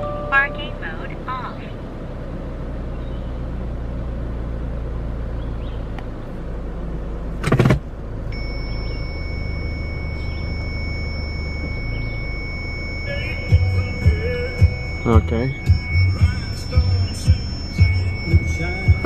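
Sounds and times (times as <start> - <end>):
car engine idling: 0.0 - 19.0
high electronic tone: 8.3 - 19.0.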